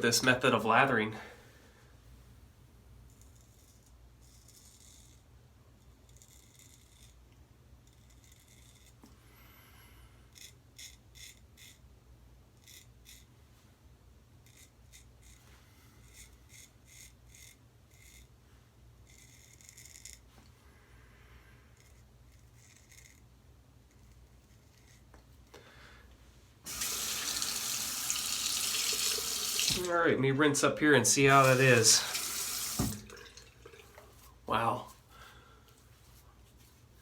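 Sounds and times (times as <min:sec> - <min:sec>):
razor scraping stubble: 0:31.2 - 0:33.0.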